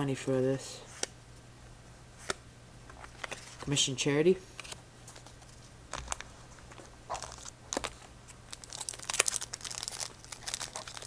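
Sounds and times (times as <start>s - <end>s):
foil wrapper crinkling and tearing: 7.1s - 11.0s.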